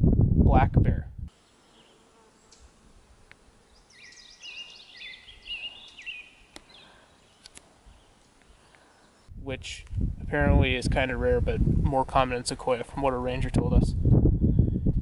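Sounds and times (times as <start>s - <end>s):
songbird chirping: 1.3s - 9.4s
faint outdoor hush: 1.3s - 10.1s.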